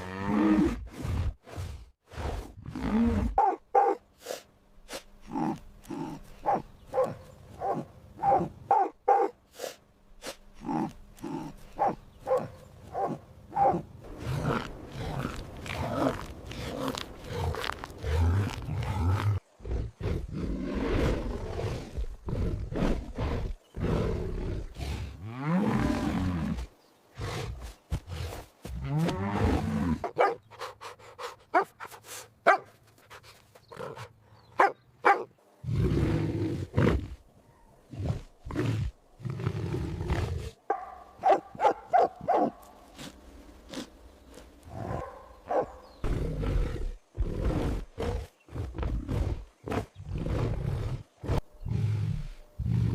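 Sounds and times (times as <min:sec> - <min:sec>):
big cat roaring and growling: 0:13.6 - 0:30.2, 0:35.6 - 0:37.2, 0:46.0 - 0:52.9.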